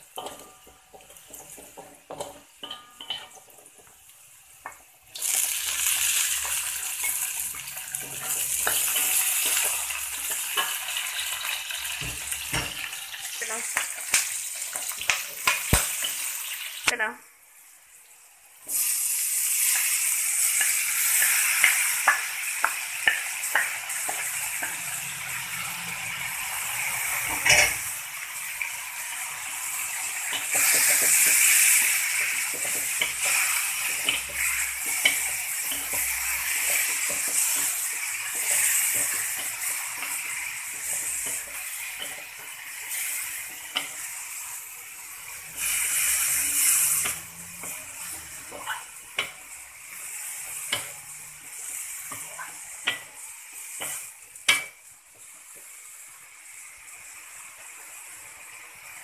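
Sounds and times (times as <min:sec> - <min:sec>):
leaves sizzling in hot oil: 0:00.0 - 0:59.0
wooden spatula scraping a pan: 0:45.4 - 0:54.1.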